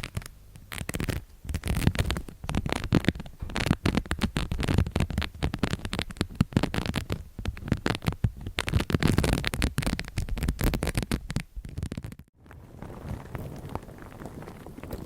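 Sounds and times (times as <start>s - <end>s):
crackling and clicking: 0.0s - 15.0s.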